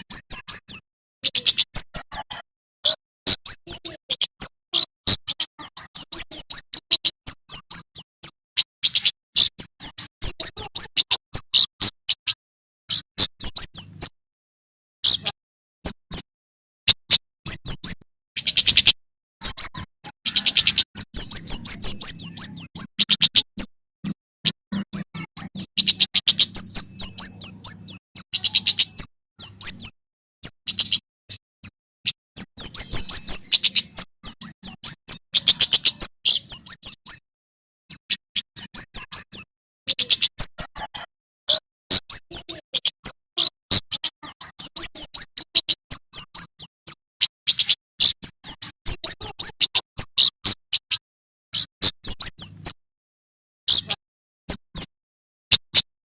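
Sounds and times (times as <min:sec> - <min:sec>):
songbird singing high chirps: 0:00.0 - 0:14.2, 0:16.9 - 0:37.2, 0:37.9 - 0:51.0, 0:51.6 - 0:52.8.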